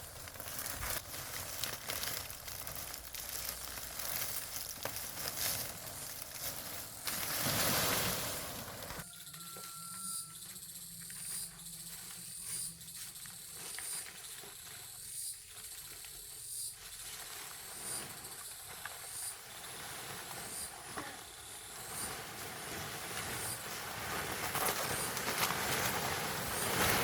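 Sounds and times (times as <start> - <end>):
high-pitched insect chirping: 9.0 - 16.8.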